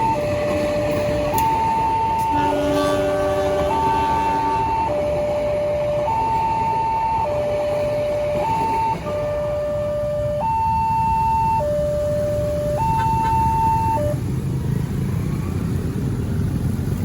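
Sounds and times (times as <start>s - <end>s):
level crossing two-tone alarm: 0.0s - 2.7s, 3.7s - 14.2s.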